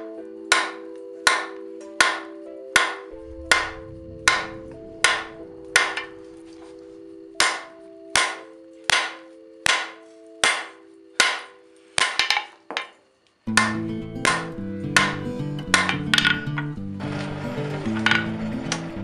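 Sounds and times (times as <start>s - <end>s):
background music sustained notes: 0.0s - 19.0s
hammer striking iron on anvil: 0.5s - 6.2s, 7.4s - 12.9s, 13.5s - 16.4s.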